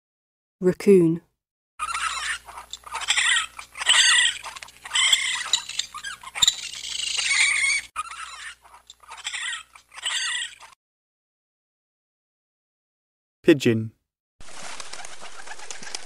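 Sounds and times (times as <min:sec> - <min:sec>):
small animal squeaky chittering: 0:01.8 - 0:10.8.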